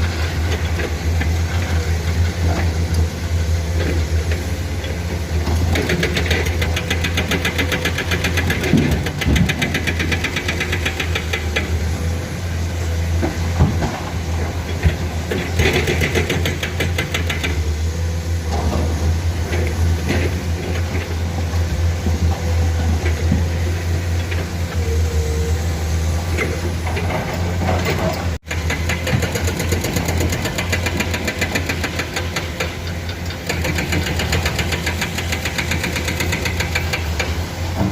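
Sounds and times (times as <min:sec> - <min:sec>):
excavator diesel engines droning: 0:00.0 - 0:37.9
sharp metal knocks and clanks: 0:05.6 - 0:11.8, 0:26.8 - 0:37.9.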